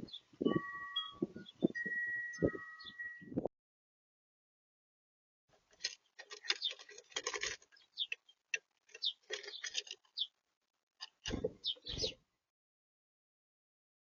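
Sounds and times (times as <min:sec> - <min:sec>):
birds pecking at seed: 0:05.6 - 0:10.4, 0:11.0 - 0:12.2.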